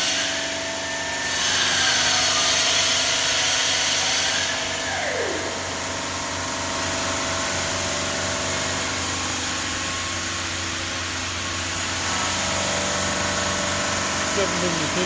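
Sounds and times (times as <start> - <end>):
stone saw cutting granite: 0.0 - 5.9, 11.4 - 15.0.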